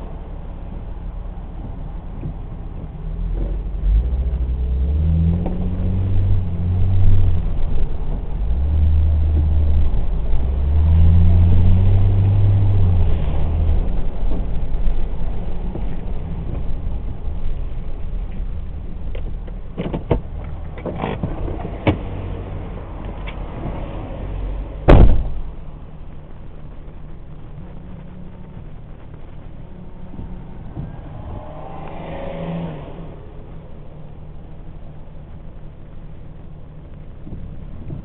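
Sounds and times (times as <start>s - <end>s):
steady hum: 24.6s - 38.0s
car engine running: 24.7s - 38.0s
loud thump: 24.9s - 25.5s.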